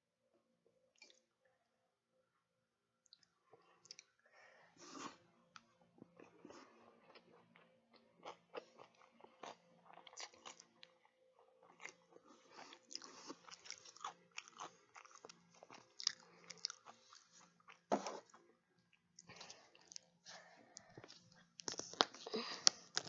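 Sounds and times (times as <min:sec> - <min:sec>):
person chewing: 0:04.8 - 0:10.9, 0:11.6 - 0:18.4.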